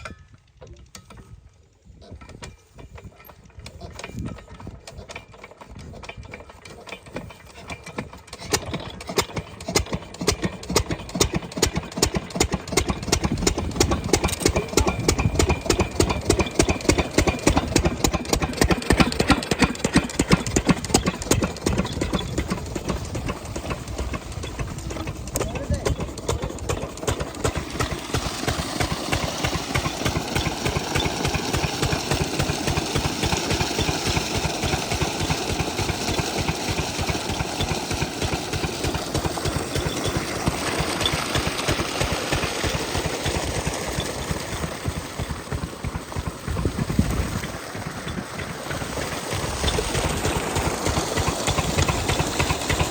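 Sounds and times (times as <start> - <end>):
diesel water pump engine running: 1.9 - 52.9.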